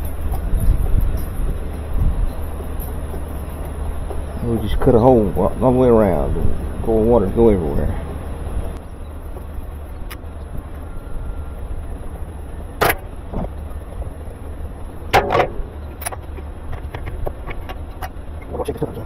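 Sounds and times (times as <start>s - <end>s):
steady low rumble: 0.0s - 19.0s
sharp knocks and clatters: 12.8s - 13.5s, 15.1s - 18.2s.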